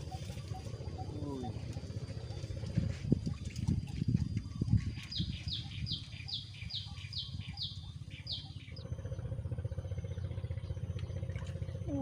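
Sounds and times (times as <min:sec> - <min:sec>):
bird calling descending notes: 0:00.0 - 0:02.6
steady low rumble: 0:00.0 - 0:12.0.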